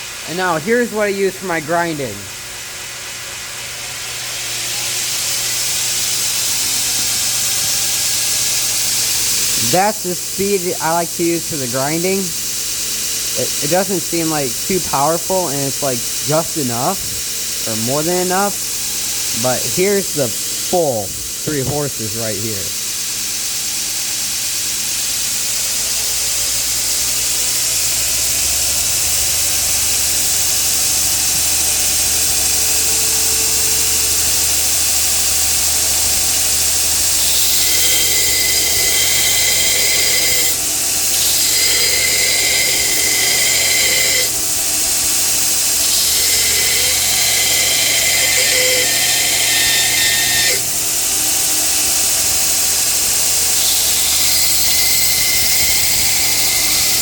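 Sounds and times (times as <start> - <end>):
belt grinder motor humming: 30.0 - 57.0
metal grinding on belt: 36.5 - 50.8, 53.3 - 57.0.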